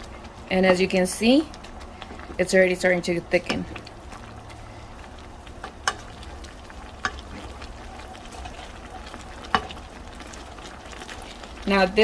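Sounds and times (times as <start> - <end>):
sauce sizzling and bubbling: 0.0 - 12.0
utensil clicking against pan: 5.6 - 6.3, 6.9 - 7.4, 9.4 - 9.8.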